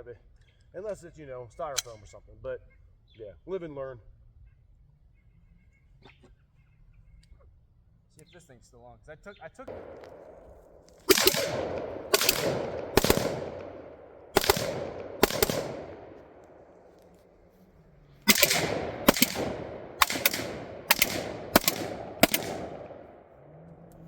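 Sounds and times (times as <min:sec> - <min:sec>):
gunshots echoing: 0:09.7 - 0:17.3, 0:18.2 - 0:23.3.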